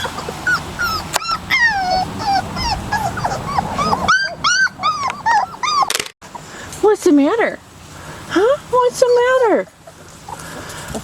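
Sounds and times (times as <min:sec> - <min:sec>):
puppies whimpering and squealing: 0:00.0 - 0:06.1.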